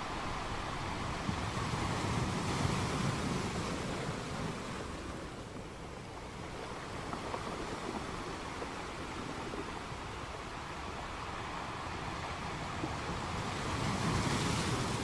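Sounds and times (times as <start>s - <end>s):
sea surf washing onto shore: 0.0s - 15.0s.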